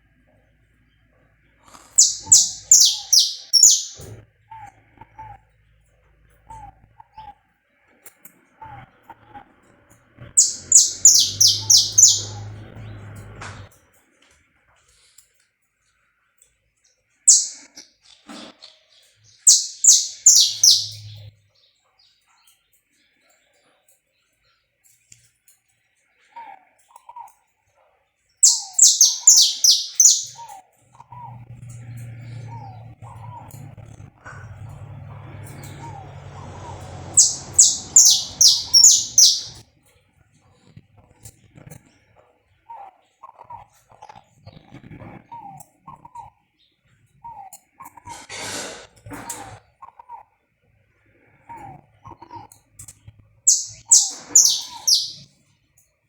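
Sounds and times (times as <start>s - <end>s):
finch high chirps: 1.9s - 4.1s, 10.4s - 13.0s, 17.3s - 21.3s, 28.4s - 30.6s, 35.3s - 39.6s, 53.5s - 55.3s.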